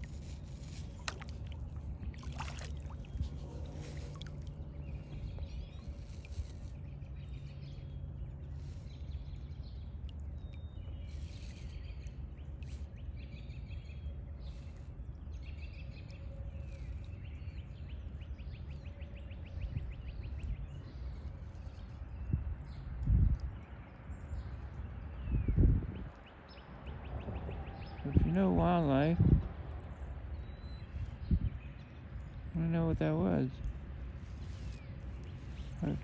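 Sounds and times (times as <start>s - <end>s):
steady low rumble: 0.0s - 18.9s
small birds chirping: 0.0s - 27.0s, 27.9s - 36.0s.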